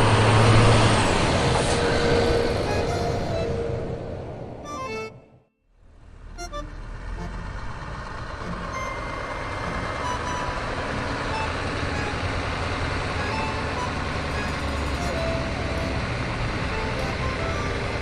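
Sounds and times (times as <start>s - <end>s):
vehicle engine running: 5.8s - 18.0s.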